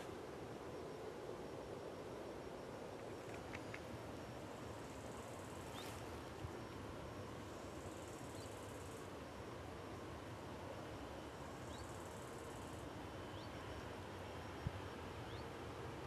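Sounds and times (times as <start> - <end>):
insect buzzing: 0.0 - 9.3.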